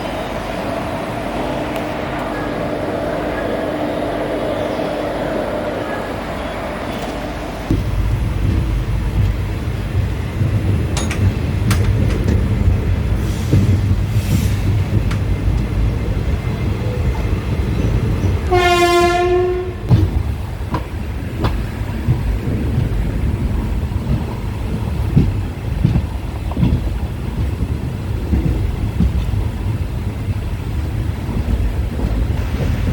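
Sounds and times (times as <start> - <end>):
train wheels rumbling on rails: 0.0 - 32.9
clacks at rail joints: 6.9 - 32.9
train horn: 18.5 - 20.0.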